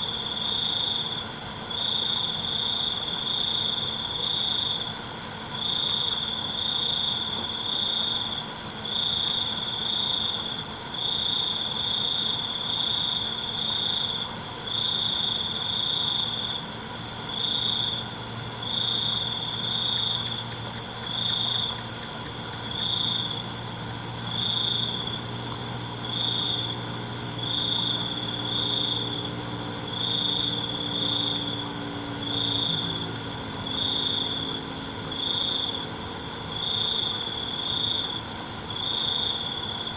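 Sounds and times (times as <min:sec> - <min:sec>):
crickets chirping: 0:00.0 - 0:39.9
low engine-like drone: 0:15.5 - 0:39.9.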